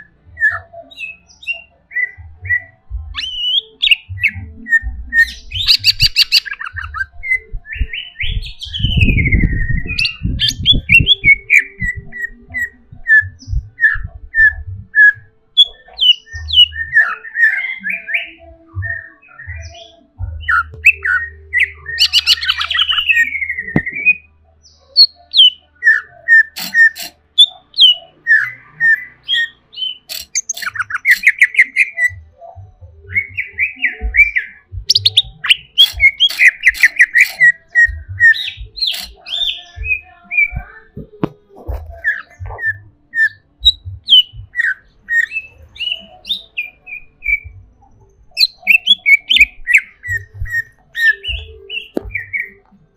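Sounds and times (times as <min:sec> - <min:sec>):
bird singing chirps and whistles: 0:00.0 - 0:52.8
low thumps: 0:23.6 - 0:24.2, 0:39.8 - 0:43.0, 0:43.6 - 0:44.6.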